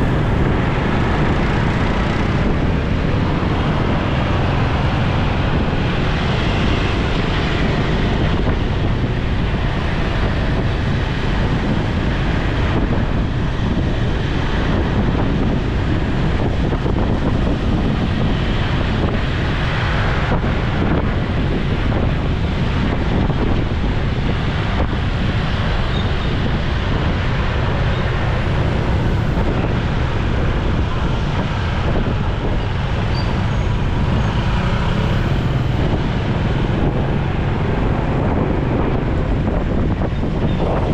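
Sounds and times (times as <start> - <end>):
road and traffic noise: 0.0 - 40.9
wind rushing over microphone: 0.0 - 40.9.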